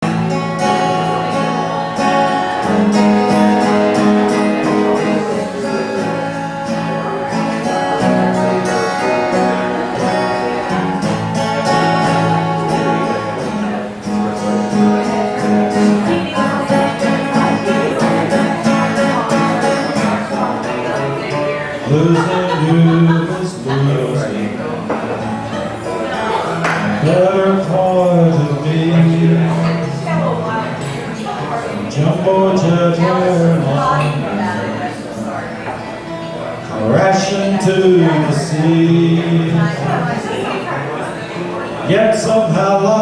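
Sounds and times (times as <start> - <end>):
acoustic guitar strumming: 0.0 - 43.0.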